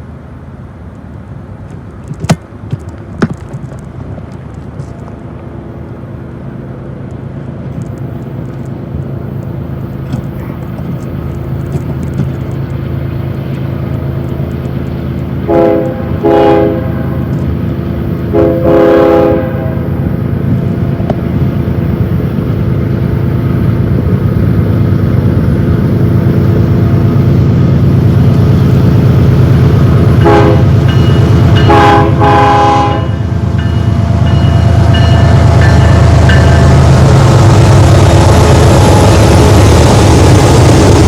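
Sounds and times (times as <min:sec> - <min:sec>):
locomotive engines rumbling: 0:00.0 - 0:41.0
train air horn blasts: 0:15.5 - 0:17.3, 0:18.3 - 0:20.0, 0:30.2 - 0:30.8, 0:31.6 - 0:33.3.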